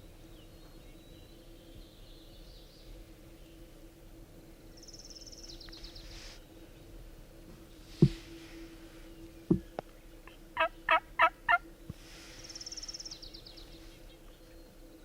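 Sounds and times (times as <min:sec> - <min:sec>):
sharp thump: 0:08.0 - 0:08.3
wild turkey calling: 0:09.5 - 0:12.9.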